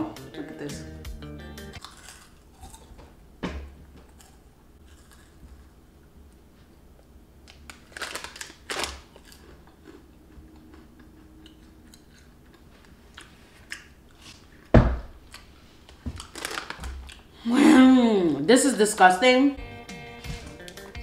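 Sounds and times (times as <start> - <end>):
cheese puffs crunched and chewed: 1.8 - 2.9, 4.1 - 5.8, 7.5 - 14.4, 16.2 - 17.3
small crackles: 7.4 - 9.4, 15.4 - 17.2.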